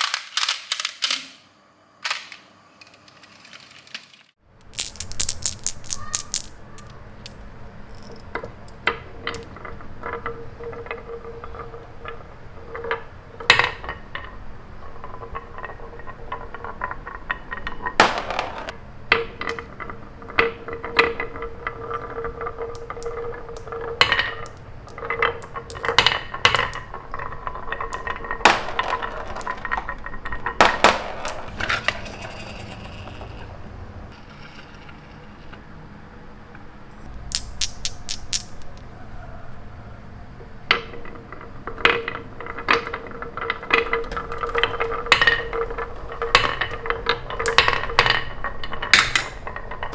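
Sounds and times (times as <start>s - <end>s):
hard toys clicking and clinking: 2.1s - 35.6s, 37.0s - 38.9s.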